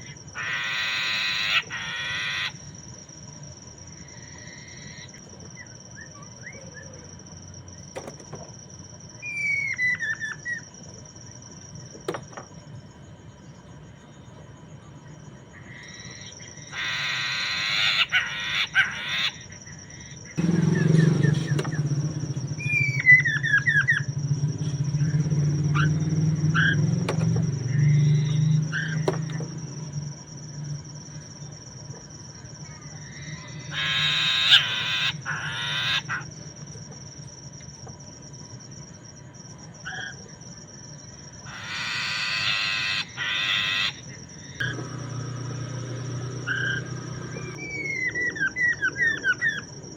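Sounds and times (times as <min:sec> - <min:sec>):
bird singing whistled notes: 0:20.4 - 0:24.1, 0:46.4 - 0:49.7
low motor drone: 0:20.4 - 0:30.9, 0:44.6 - 0:48.4.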